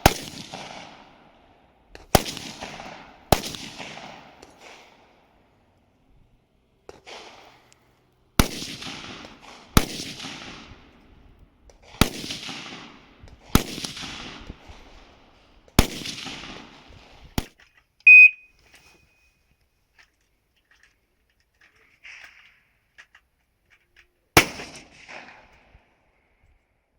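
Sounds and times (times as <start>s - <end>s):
rifle shots echoing: 0.0s - 1.4s, 2.0s - 5.0s, 8.4s - 10.9s, 11.8s - 14.7s, 15.8s - 16.9s, 24.4s - 25.6s
high-pitched electronic beep: 18.1s - 18.5s.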